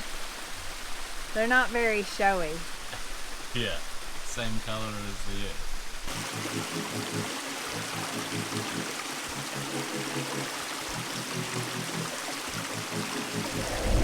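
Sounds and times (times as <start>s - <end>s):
creek water rushing: 0.0s - 14.0s
soft background music: 6.1s - 14.0s.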